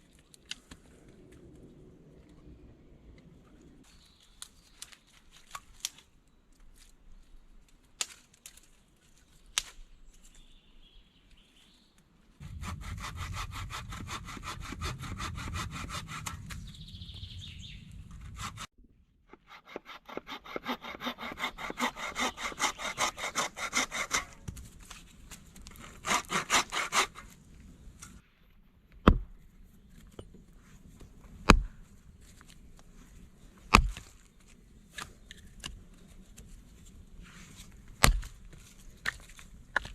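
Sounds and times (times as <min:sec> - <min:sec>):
hand saw cutting wood: 0:12.4 - 0:16.6, 0:18.1 - 0:18.7, 0:19.3 - 0:24.5, 0:25.7 - 0:27.4.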